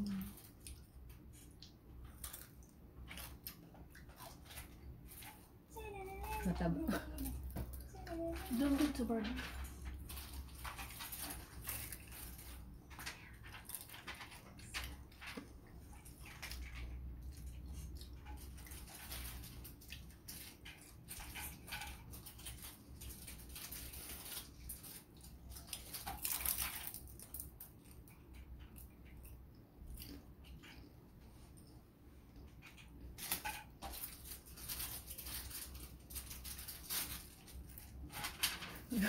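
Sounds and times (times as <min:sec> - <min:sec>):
crunchy food chewing: 0:00.1 - 0:04.9.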